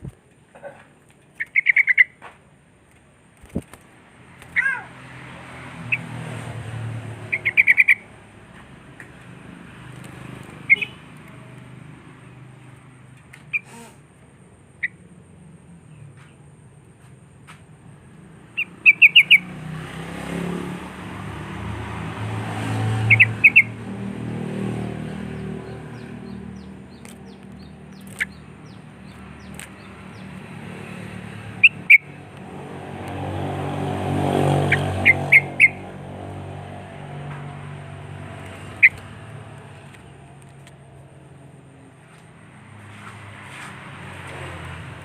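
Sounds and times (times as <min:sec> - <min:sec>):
motor vehicles passing: 0:00.0 - 0:45.0
bird chirping: 0:01.2 - 0:02.2, 0:07.2 - 0:08.1, 0:10.5 - 0:11.4, 0:18.5 - 0:19.6, 0:23.0 - 0:23.8, 0:25.1 - 0:32.2, 0:34.5 - 0:35.9, 0:38.3 - 0:40.0.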